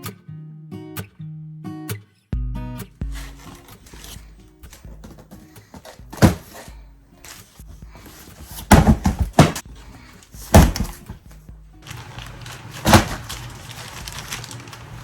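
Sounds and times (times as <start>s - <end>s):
quiet background music: 2.0s - 15.0s
loud thuds and knocks: 3.1s - 6.7s, 7.9s - 9.8s, 10.4s - 11.3s, 12.8s - 13.4s.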